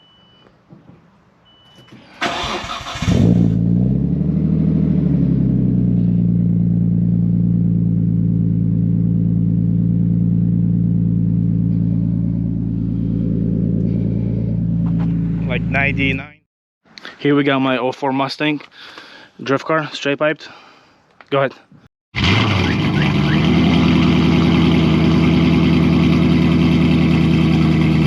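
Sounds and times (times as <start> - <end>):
car engine revving and idling: 2.4 - 16.4, 22.2 - 28.0.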